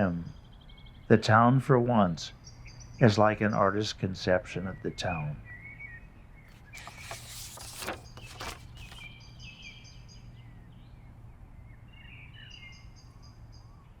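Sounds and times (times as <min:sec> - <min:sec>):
rustling: 0:06.5 - 0:09.1.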